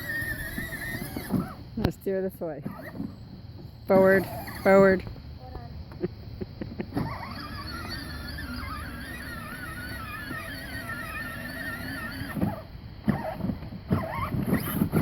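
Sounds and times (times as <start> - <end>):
toy truck motor whining: 0.0 - 1.6, 2.6 - 3.2, 3.9 - 5.0, 6.9 - 15.0.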